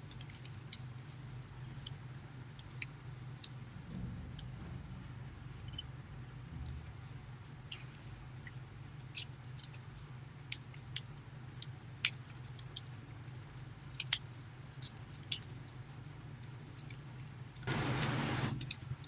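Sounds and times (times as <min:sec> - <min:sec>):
low steady hum: 0:00.0 - 0:09.2, 0:17.7 - 0:19.0.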